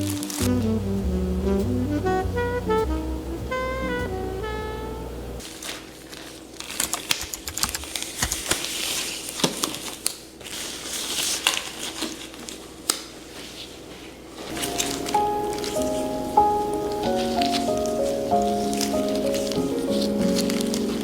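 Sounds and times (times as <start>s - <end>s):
melody: 0.0s - 5.4s, 14.5s - 21.0s
crinkling and sharp clicks: 5.4s - 13.2s, 14.4s - 21.0s.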